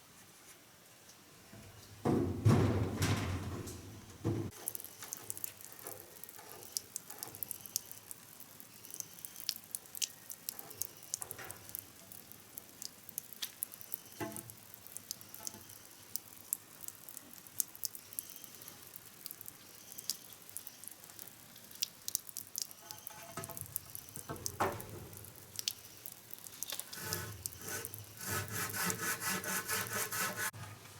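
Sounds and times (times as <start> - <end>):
low hiss: 0.0 - 30.9
knocks: 2.0 - 4.6
light clicks and crackles: 4.5 - 27.6.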